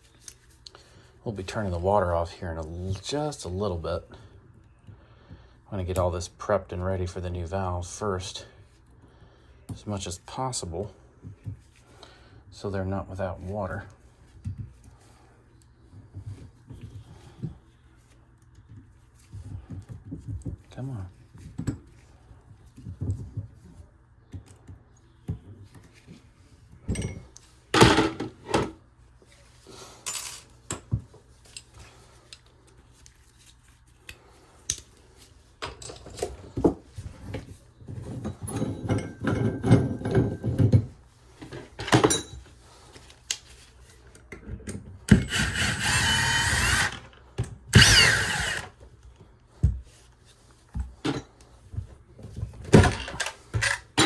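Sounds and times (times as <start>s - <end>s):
power drill running: 45.1s - 47.1s, 47.7s - 48.8s
tools clicking and knocking: 52.7s - 54.0s.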